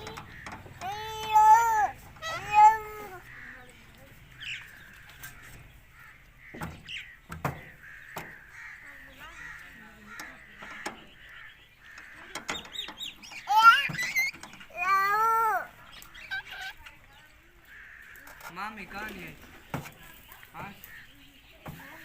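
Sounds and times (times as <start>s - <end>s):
parrot calling: 0.0s - 3.7s, 13.1s - 16.9s
parrot chirps and chatter: 0.0s - 22.0s.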